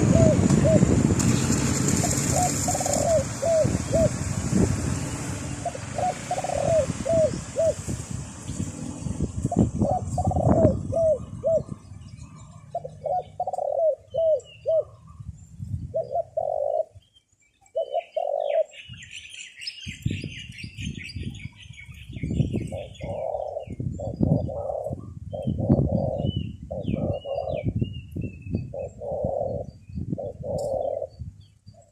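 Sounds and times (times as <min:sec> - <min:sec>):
doves cooing: 0:00.0 - 0:04.3, 0:05.0 - 0:07.9, 0:09.5 - 0:15.3, 0:15.9 - 0:17.1, 0:17.7 - 0:18.9, 0:22.6 - 0:27.8, 0:28.7 - 0:31.2
wind buffeting microphone: 0:00.0 - 0:17.1, 0:18.8 - 0:31.9.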